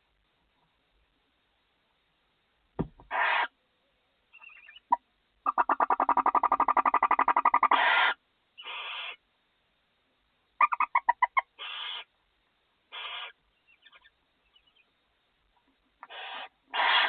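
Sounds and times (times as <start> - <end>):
owl ticking chitters: 3.0 - 3.5, 4.3 - 9.2, 10.6 - 12.1, 12.9 - 14.9, 16.0 - 17.0
owls rasping hiss calls: 3.1 - 3.6, 5.4 - 9.2, 10.6 - 12.1, 12.9 - 14.1, 16.0 - 17.0.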